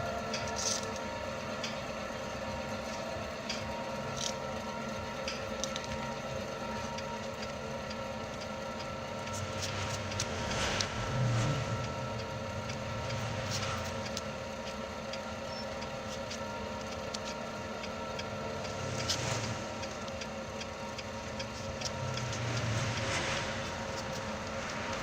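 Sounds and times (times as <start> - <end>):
machine hum: 0.0 - 25.0
rushing noise: 8.9 - 14.6, 21.1 - 25.0.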